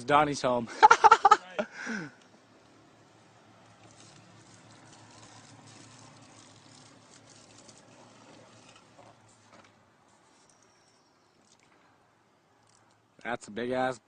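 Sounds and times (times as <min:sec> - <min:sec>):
fuel pattering and splashing: 0:03.5 - 0:09.4.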